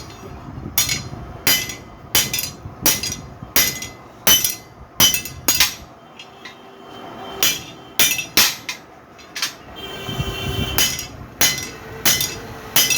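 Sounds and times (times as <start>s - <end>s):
sharp clinking strikes: 10.8s - 12.9s.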